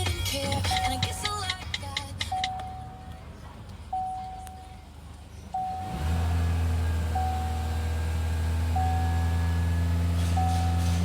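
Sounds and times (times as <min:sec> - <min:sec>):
car engine starting and idling: 0:00.0 - 0:11.0
warning chime beeping: 0:10.4 - 0:11.0.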